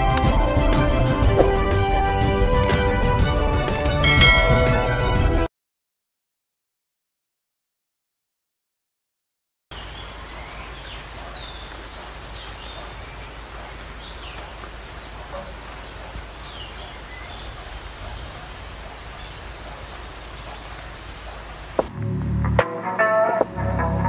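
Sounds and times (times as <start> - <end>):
birds chirping and whistling: 9.8 - 21.9
high bird trill: 15.0 - 21.9.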